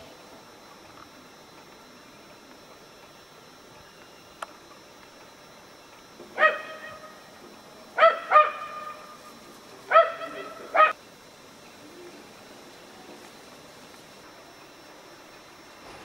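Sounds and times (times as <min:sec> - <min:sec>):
dog barking: 0:06.4 - 0:07.1, 0:08.0 - 0:09.1, 0:09.9 - 0:11.0.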